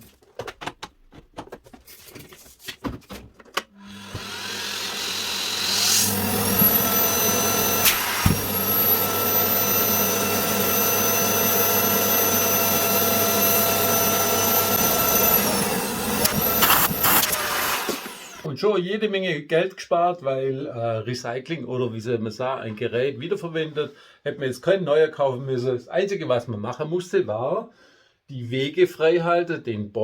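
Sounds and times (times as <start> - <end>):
vacuum cleaner motor whining: 3.7 - 18.5
vacuum cleaner handling clicks: 5.7 - 8.8, 15.1 - 18.1.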